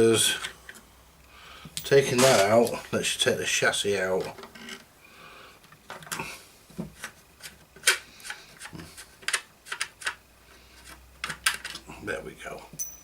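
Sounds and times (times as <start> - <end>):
hands clicking and knocking on radio case: 6.8 - 10.2, 10.8 - 11.8.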